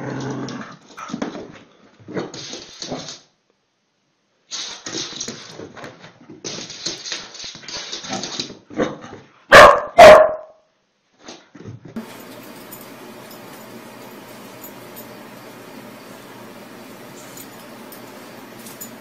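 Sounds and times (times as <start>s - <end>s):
dogs barking and yapping: 9.5s - 10.4s, 12.0s - 19.0s.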